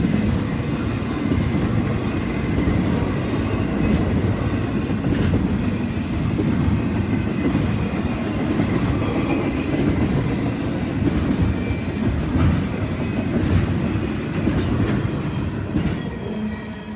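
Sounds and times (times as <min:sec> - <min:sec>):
rumble of train wheels on rail: 0:00.0 - 0:16.9
wheels clicking over rail joints: 0:03.8 - 0:16.1.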